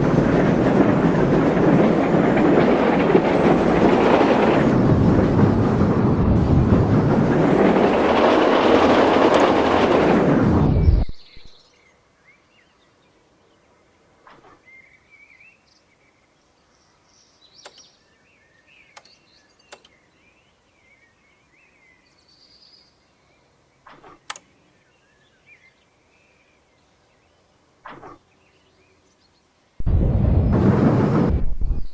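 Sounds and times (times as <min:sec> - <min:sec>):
train rushing rumble: 0:00.0 - 0:11.5, 0:29.8 - 0:31.9
birds chirping: 0:10.7 - 0:29.6
sharp clicks: 0:17.6 - 0:17.9, 0:18.9 - 0:20.0, 0:23.9 - 0:24.5.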